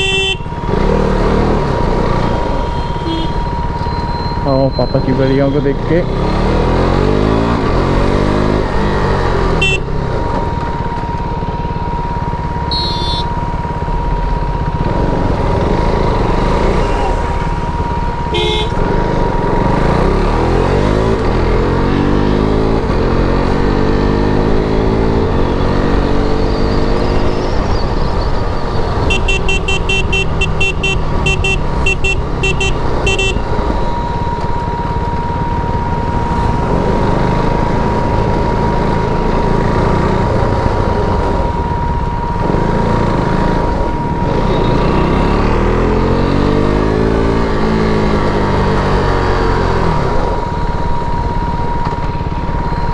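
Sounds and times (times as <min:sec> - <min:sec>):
horn short toots: 0:00.0 - 0:00.6, 0:02.5 - 0:03.5, 0:09.6 - 0:09.9, 0:12.7 - 0:13.3, 0:18.3 - 0:18.8, 0:29.1 - 0:33.5
motorcycle engine revving: 0:00.0 - 0:04.4, 0:05.8 - 0:10.9, 0:14.6 - 0:52.3.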